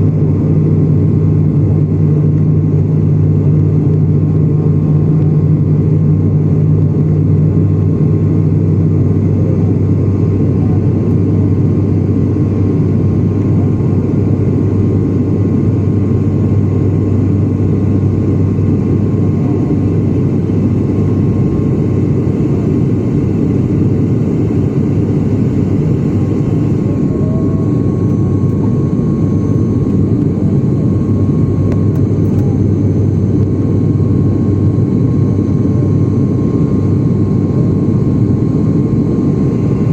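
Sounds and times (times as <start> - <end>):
airliner engines droning: 0.0 - 39.9
low hum: 0.0 - 39.9.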